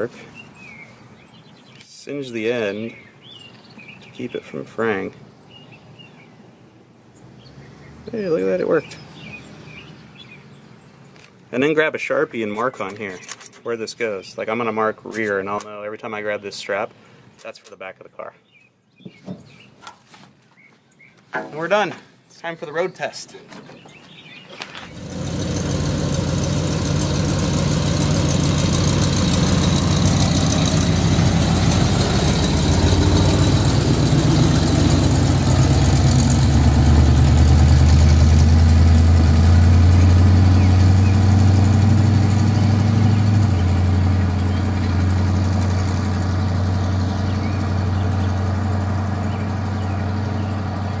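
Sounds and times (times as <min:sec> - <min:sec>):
truck engine running: 0:24.9 - 0:51.0.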